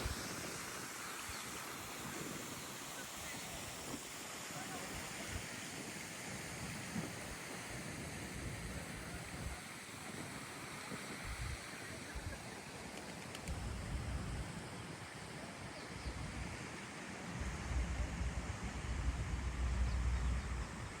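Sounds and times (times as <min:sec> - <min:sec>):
outdoor rushing ambience: 0:17.3 - 0:21.0
wind buffeting microphone: 0:17.4 - 0:21.0.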